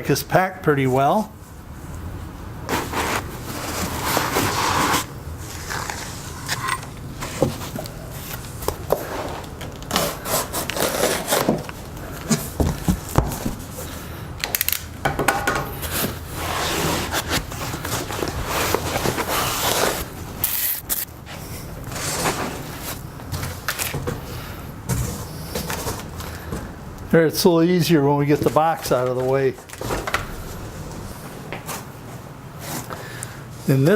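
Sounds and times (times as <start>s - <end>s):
cardboard and foam packing scraping: 2.7s - 6.6s, 7.2s - 13.9s, 15.8s - 24.3s
rustling: 2.7s - 14.0s.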